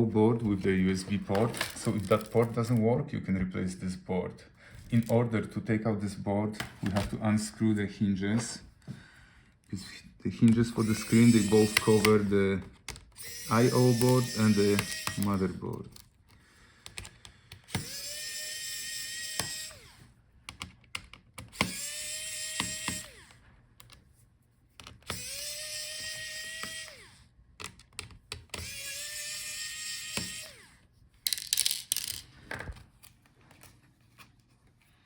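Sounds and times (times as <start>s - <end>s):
electric screwdriver whining: 10.4s - 15.6s, 17.5s - 20.2s, 21.4s - 23.4s, 25.0s - 27.3s, 28.4s - 30.8s.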